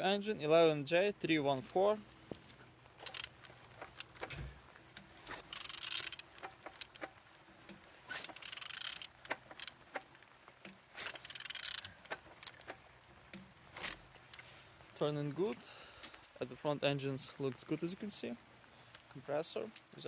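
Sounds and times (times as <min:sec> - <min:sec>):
engine clicks: 0:02.5 - 0:15.1
engine turning over rasping: 0:02.8 - 0:14.6.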